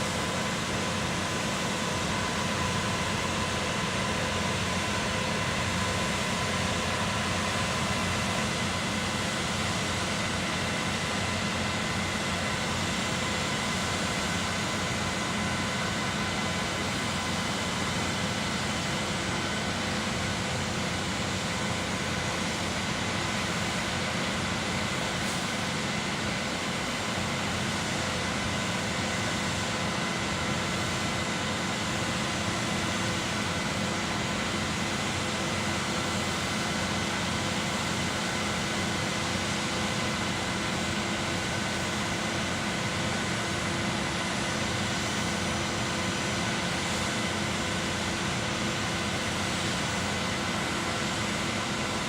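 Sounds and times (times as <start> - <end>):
concrete pump machinery hum: 0.0 - 52.0.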